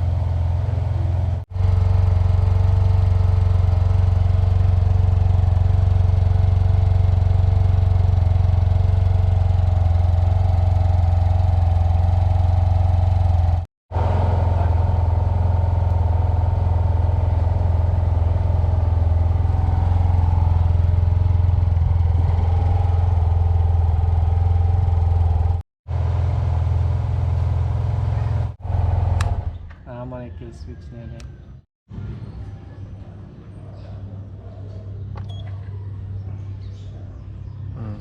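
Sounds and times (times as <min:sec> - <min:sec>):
scooter engine idling: 0:00.0 - 0:30.0.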